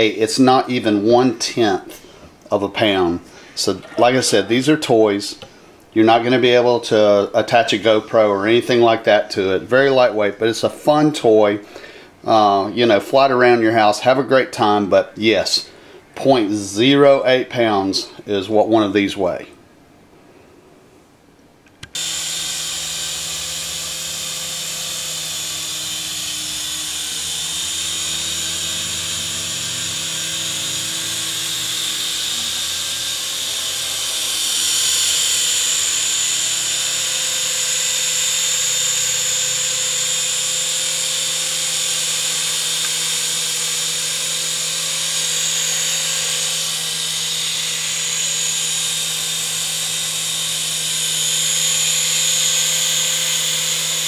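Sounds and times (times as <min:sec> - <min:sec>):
toy helicopter motors whining: 0:21.8 - 0:54.0.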